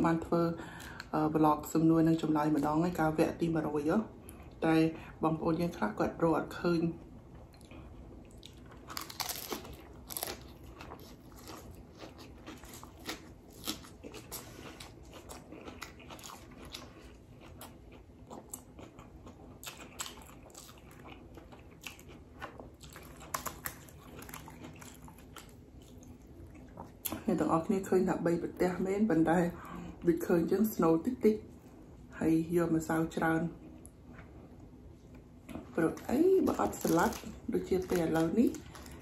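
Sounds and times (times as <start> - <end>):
crispy food crunching: 7.6 - 27.2, 35.4 - 39.0.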